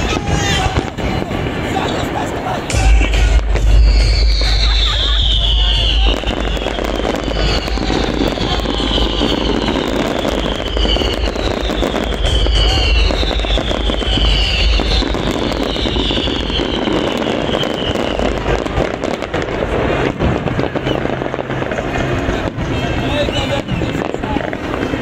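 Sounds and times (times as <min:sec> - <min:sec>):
fireworks crackling and banging: 0:00.0 - 0:25.0
low fireworks booms: 0:00.0 - 0:25.0
high falling whistles: 0:03.0 - 0:18.2.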